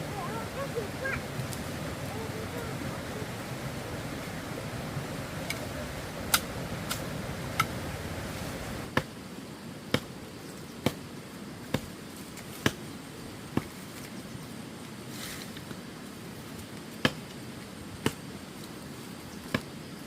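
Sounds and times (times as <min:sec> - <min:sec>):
low rumble: 0:00.0 - 0:08.9.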